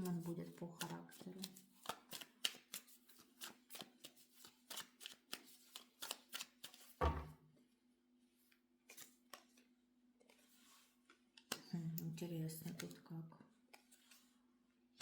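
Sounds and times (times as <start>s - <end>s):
cards being shuffled: 0.0s - 7.2s, 8.8s - 11.7s, 12.6s - 13.0s, 13.6s - 14.3s
thump: 7.0s - 7.4s.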